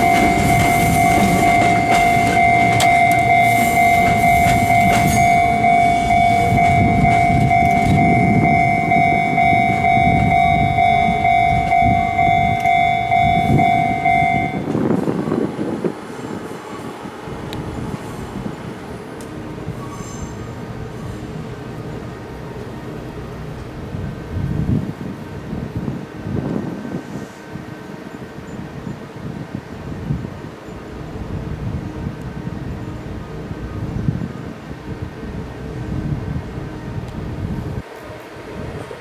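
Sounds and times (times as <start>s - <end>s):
high two-pitch warning tone: 0.0s - 14.8s
electric train passing: 0.0s - 39.0s.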